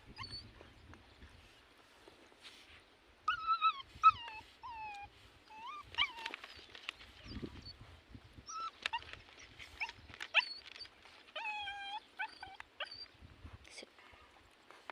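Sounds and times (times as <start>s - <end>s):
dog whimpering: 3.3s - 6.6s, 8.5s - 9.1s, 11.4s - 13.1s.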